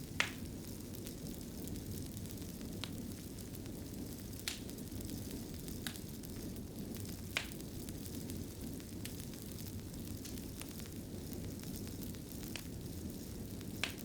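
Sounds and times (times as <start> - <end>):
fire popping: 0.0 - 14.0
wood fire crackling: 0.0 - 14.0.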